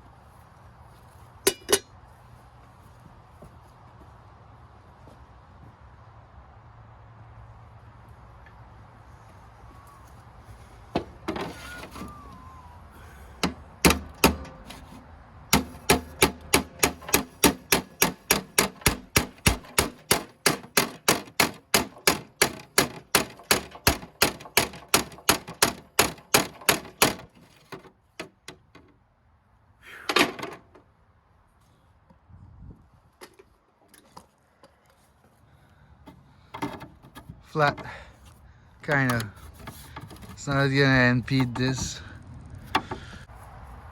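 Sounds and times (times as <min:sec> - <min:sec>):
hammer tapping on metal: 0:13.4 - 0:14.8, 0:15.5 - 0:27.3.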